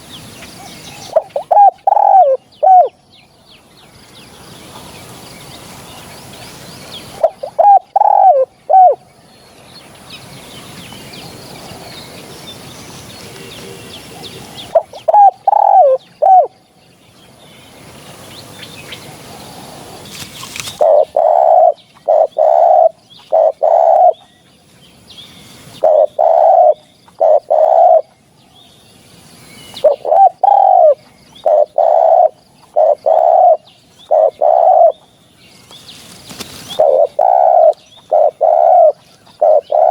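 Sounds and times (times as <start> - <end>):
dove cooing: 0.9 - 3.0, 7.2 - 9.0, 13.2 - 16.6, 20.7 - 24.2, 25.8 - 28.1, 29.8 - 35.0, 36.6 - 39.9
faint bird chirps: 18.3 - 39.9.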